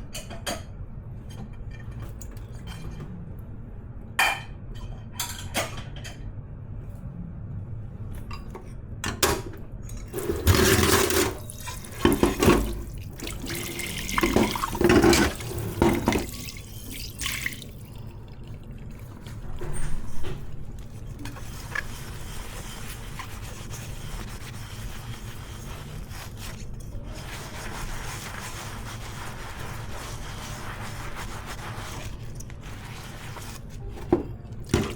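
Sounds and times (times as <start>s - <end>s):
tap water splashing into sink: 10.1s - 17.9s.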